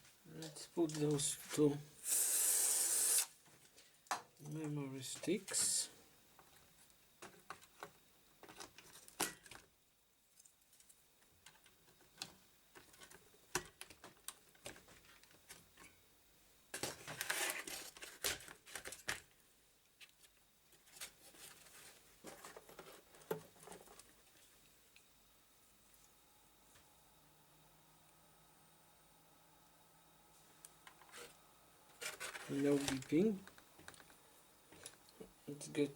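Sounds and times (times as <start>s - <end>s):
rustling and scraping: 16.8s - 19.2s, 20.0s - 24.7s, 30.9s - 35.1s.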